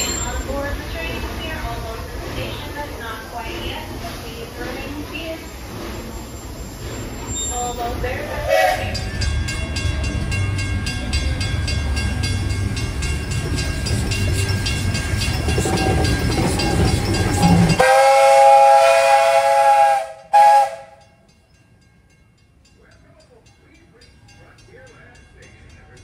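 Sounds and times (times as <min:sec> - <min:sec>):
steam locomotive rumble: 0:00.0 - 0:26.0
steam whistle blasts: 0:08.4 - 0:09.0, 0:17.5 - 0:21.0.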